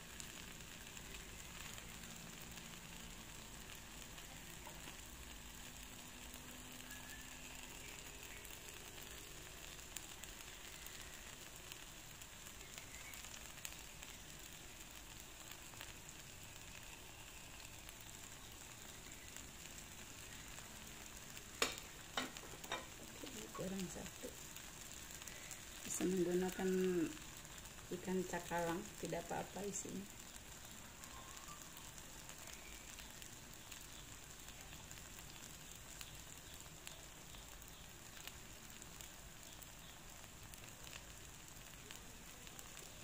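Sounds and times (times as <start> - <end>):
batter sizzling in oil: 0.0 - 43.0.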